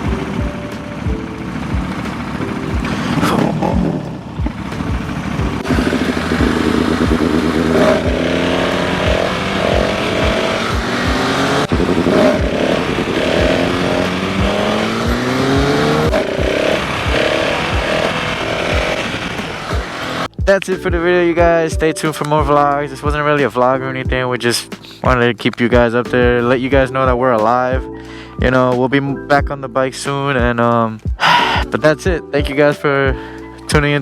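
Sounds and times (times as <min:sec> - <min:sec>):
motorcycle engine accelerating: 0:00.0 - 0:20.3.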